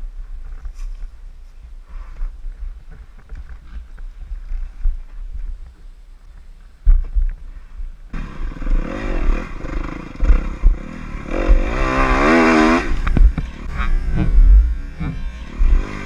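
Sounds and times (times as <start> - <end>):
dirt bike engine revving: 8.1 - 16.0
low thumps: 8.7 - 16.0.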